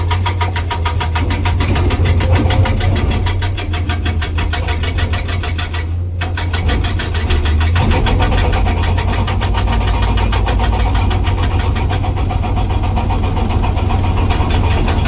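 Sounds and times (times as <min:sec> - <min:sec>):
excavator diesel engine drone: 0:00.0 - 0:15.0
hydraulic breaker hammering rock: 0:00.0 - 0:15.0.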